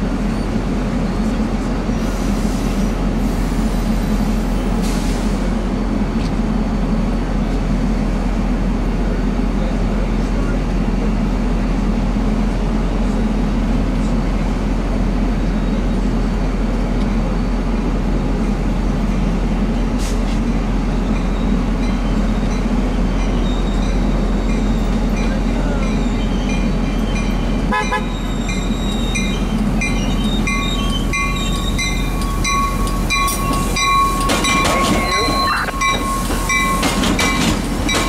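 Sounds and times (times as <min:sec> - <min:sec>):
train approaching rumble: 0:00.0 - 0:38.0
high squeal: 0:26.0 - 0:37.0.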